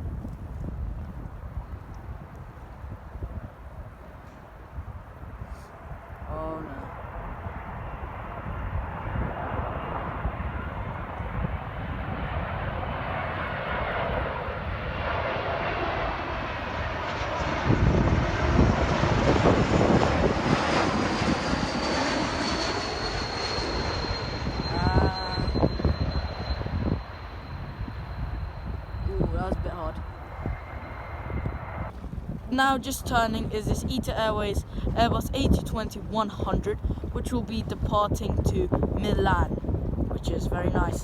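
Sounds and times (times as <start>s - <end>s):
jet airliner engine noise: 0.0s - 41.0s
high engine whine: 12.6s - 31.9s.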